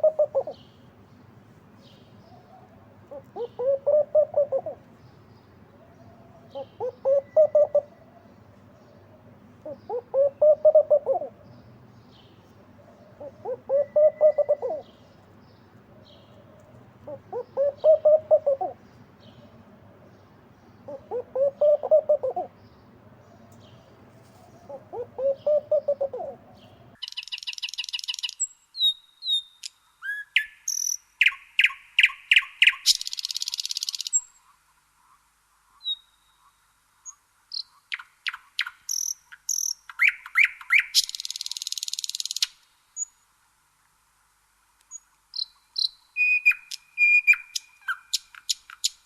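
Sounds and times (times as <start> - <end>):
low hooting bird calls: 0.0 - 1.0, 1.9 - 5.0, 5.7 - 27.0
small bird chirping and trilling: 26.6 - 29.6, 30.4 - 34.3.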